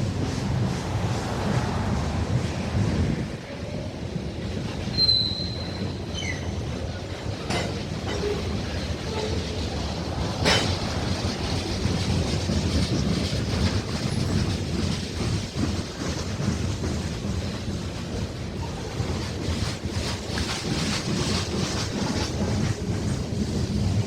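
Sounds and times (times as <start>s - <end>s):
freight train wheels rumbling: 0.0s - 24.0s
high wheel squeal: 4.8s - 6.8s.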